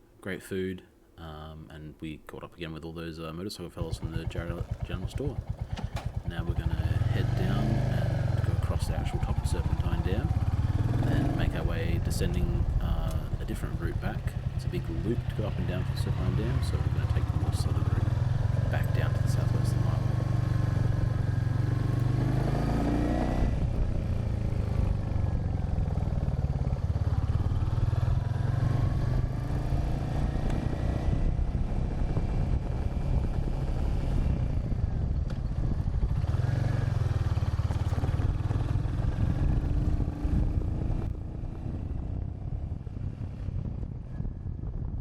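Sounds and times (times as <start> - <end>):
motorcycle engine riding away: 3.8 - 45.0
wind buffeting microphone: 30.7 - 45.0.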